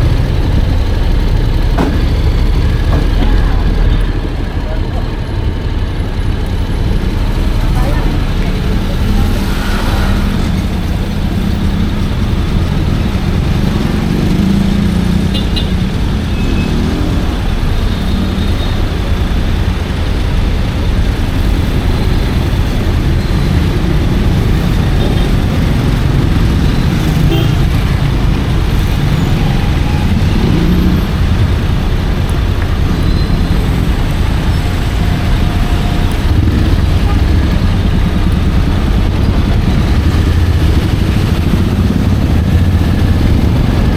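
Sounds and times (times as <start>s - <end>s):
motorcycle engine and road noise: 0.0s - 43.9s.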